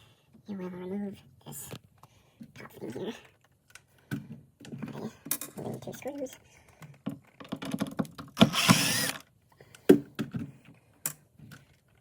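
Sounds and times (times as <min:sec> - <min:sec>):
cordless drill running: 0:08.4 - 0:09.2.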